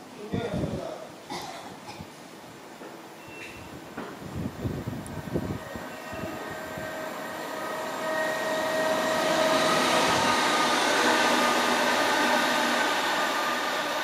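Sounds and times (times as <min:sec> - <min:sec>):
train rumble with whining tones: 0:04.2 - 0:14.0.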